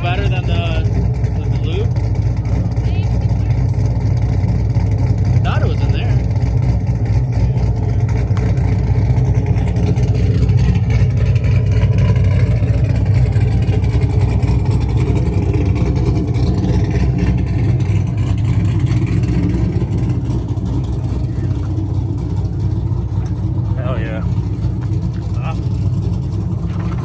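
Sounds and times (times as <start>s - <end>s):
car engine rumbling: 0.0s - 27.0s.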